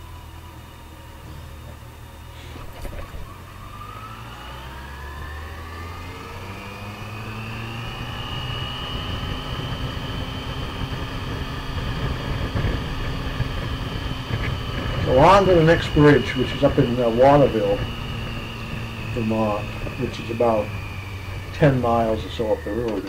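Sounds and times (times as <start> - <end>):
motorcycle engine accelerating: 0.0 - 23.0
rushing wind noise: 6.4 - 23.0.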